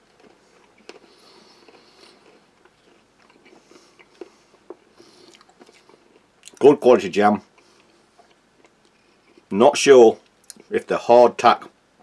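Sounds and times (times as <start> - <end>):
person chewing hard biscuit: 0.0 - 6.8, 7.4 - 9.6, 10.2 - 10.7.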